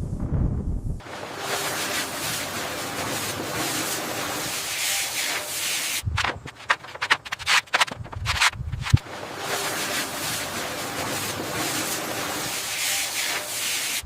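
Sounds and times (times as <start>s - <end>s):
short scraping strokes: 4.8s - 9.0s.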